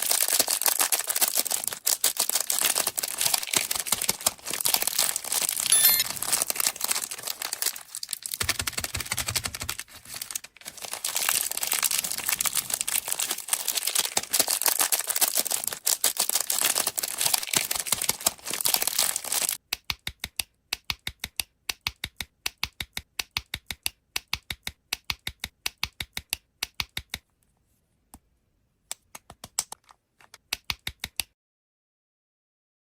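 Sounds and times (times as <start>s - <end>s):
candy wrappers crinkling and tearing: 0.0s - 19.6s.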